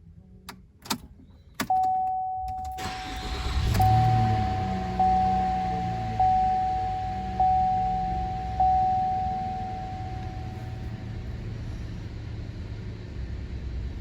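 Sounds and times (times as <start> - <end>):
car warning chime dinging: 1.6 - 10.9
low steady background hum: 4.9 - 12.7.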